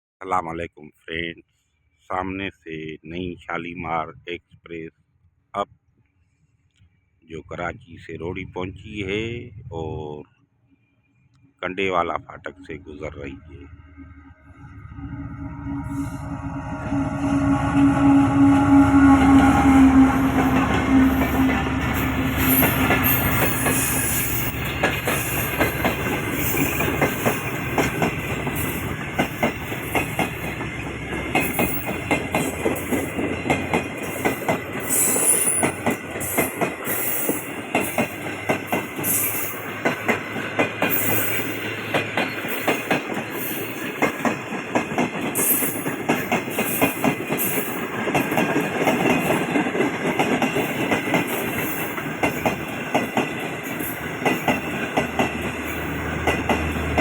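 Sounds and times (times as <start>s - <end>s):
train rolling rumble: 11.8s - 57.0s
wheels clacking over rail joints: 19.2s - 57.0s.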